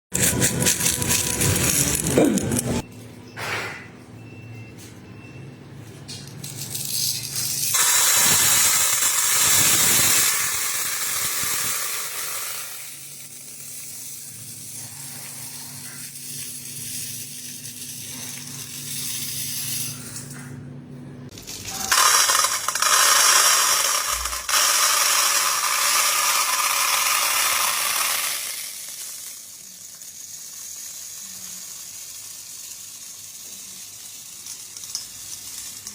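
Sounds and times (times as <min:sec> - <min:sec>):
gold pieces clinking: 0:00.2 - 0:02.8, 0:21.3 - 0:27.0.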